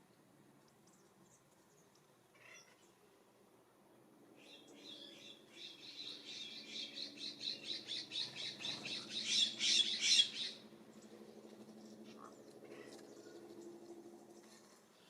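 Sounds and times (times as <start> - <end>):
bird calling harsh rapid notes: 7.5 - 10.6.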